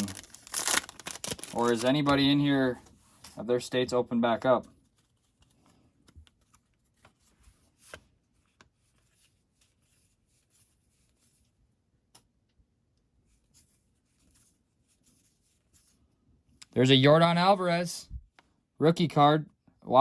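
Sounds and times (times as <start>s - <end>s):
trading cards rustling and clicking: 0.0s - 3.4s, 4.5s - 9.9s.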